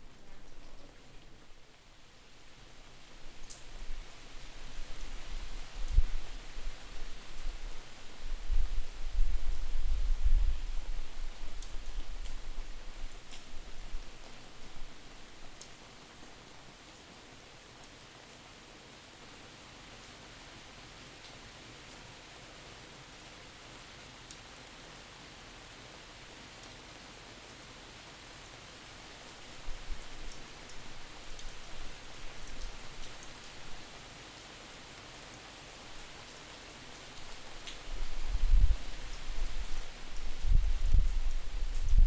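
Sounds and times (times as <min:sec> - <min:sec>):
steady rain falling: 0:00.0 - 0:42.0
wind buffeting microphone: 0:38.0 - 0:42.0.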